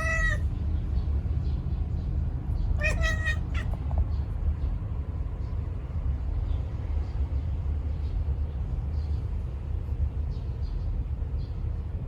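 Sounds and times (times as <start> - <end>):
cat meowing: 0.0 - 0.5, 2.8 - 3.9.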